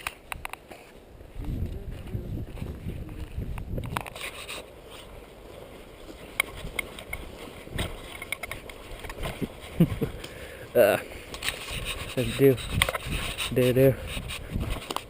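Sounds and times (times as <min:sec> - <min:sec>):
footsteps crunching outdoors: 0:00.0 - 0:15.0
wind on microphone: 0:01.2 - 0:04.5, 0:06.4 - 0:08.2, 0:08.9 - 0:10.2, 0:11.4 - 0:15.0.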